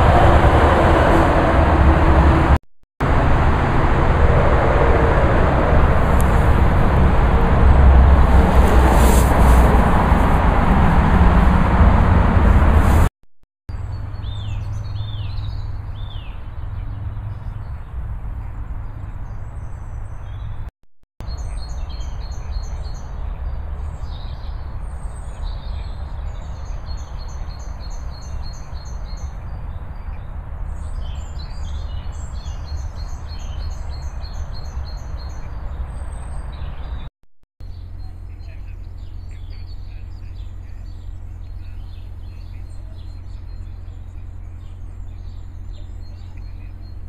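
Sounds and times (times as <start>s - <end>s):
steady low rumble: 0.0s - 13.1s
songbirds chirping and trilling: 13.7s - 20.6s, 21.2s - 47.0s.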